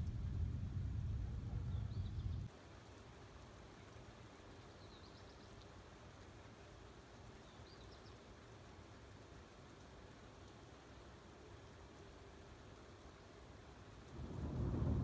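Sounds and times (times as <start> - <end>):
low rumble: 0.0 - 2.5
faint rain hiss: 0.0 - 15.0.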